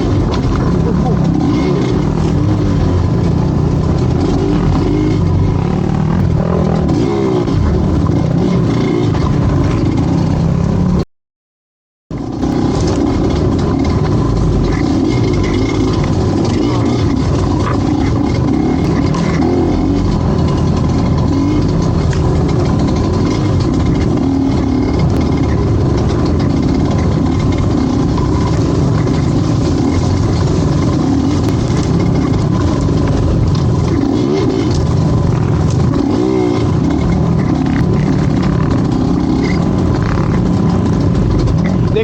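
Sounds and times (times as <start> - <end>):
vehicle engine revving: 0.0 - 11.0, 12.1 - 42.0
rushing noise: 12.1 - 42.0.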